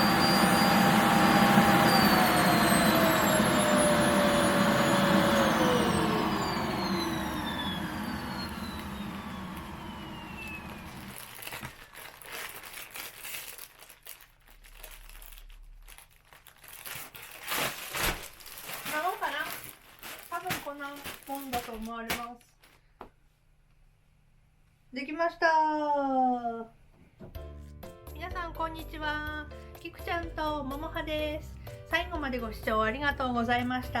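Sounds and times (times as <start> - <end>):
vacuum cleaner motor whine: 0.0 - 11.9
plastic crinkling: 10.4 - 23.0.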